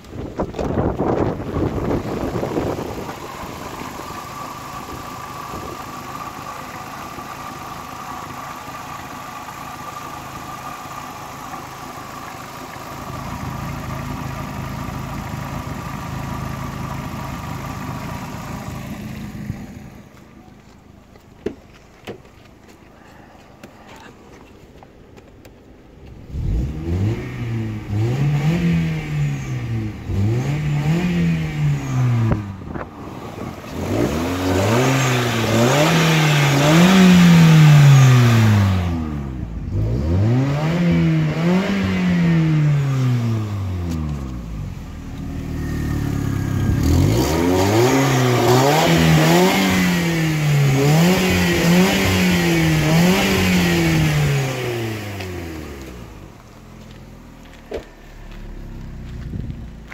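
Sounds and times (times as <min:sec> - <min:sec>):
car engine starting: 0:00.0 - 0:59.9
car engine revving: 0:26.1 - 0:59.9.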